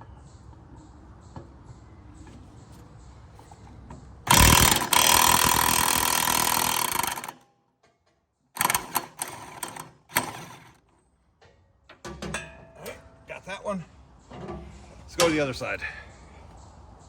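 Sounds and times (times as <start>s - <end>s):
impact wrench hammering: 4.3s - 7.4s, 8.6s - 10.8s.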